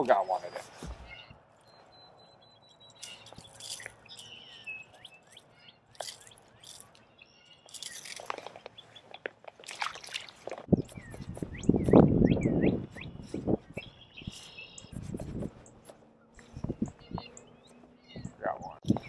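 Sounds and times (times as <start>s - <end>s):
small birds chirping: 0.0s - 19.0s
hands clicking and rustling: 2.9s - 4.4s, 5.9s - 10.7s.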